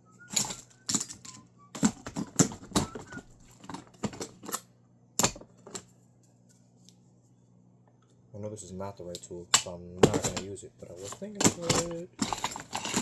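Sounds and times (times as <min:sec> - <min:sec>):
faint wavering whistle: 0:00.0 - 0:01.8, 0:02.7 - 0:03.4
metal hand tools clattering: 0:00.3 - 0:04.6, 0:10.0 - 0:13.0.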